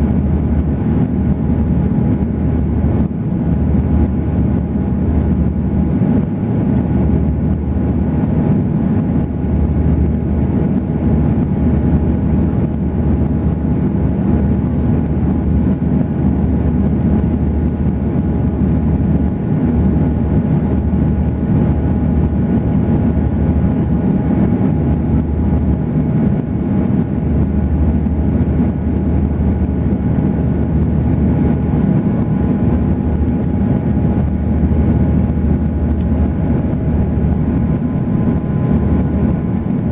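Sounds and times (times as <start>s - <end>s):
airliner cabin engine drone: 0.0s - 39.9s
faint steady whine: 0.0s - 39.9s
low hum: 9.2s - 39.9s.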